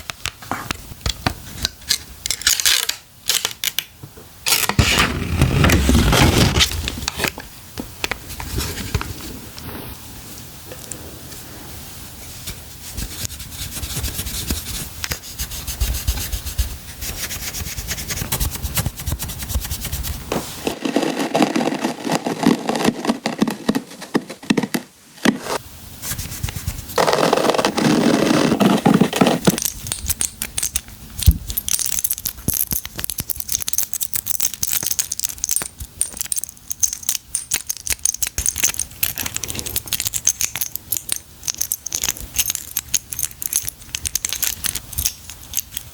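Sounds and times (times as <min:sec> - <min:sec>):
hands handling packaging: 0:28.6 - 0:45.9
packaging rustling: 0:28.8 - 0:45.9.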